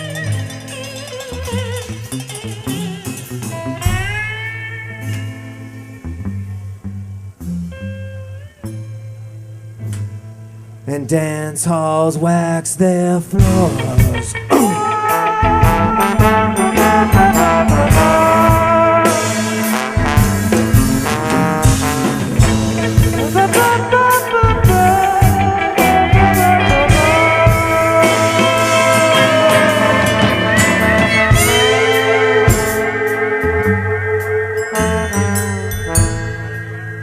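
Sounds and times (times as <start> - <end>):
drums steady beat: 0.0 - 4.6, 13.3 - 36.8
band playing bluesy instrumental: 0.0 - 6.6, 11.1 - 37.0.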